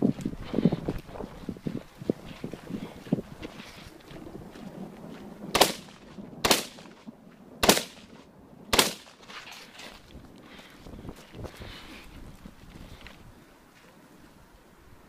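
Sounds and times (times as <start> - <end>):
rifle shots with echo: 5.5 - 9.3.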